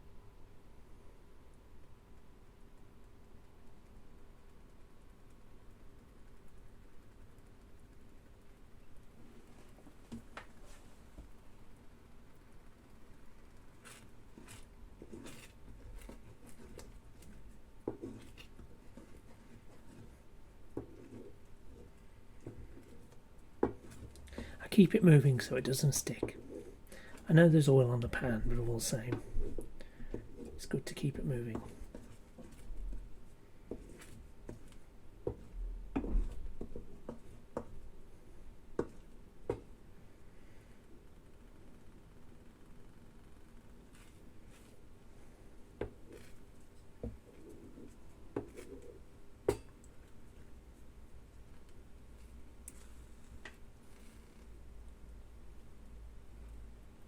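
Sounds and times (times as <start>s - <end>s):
spatula scraping a frying pan: 13.8s - 24.6s, 25.4s - 27.2s, 28.1s - 35.4s.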